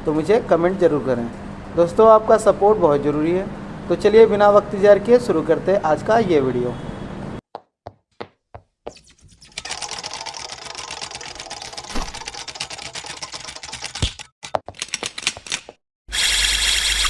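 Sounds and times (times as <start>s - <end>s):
small clicks and rattles: 9.5s - 15.7s
sharp knock: 11.9s - 12.3s.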